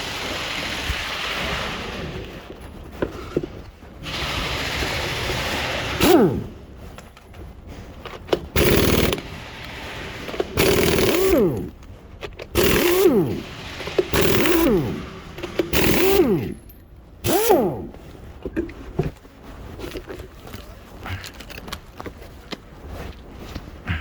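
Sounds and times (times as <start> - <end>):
impact wrench hammering: 6.0 - 6.5, 8.6 - 9.3, 10.3 - 11.8, 12.6 - 18.0.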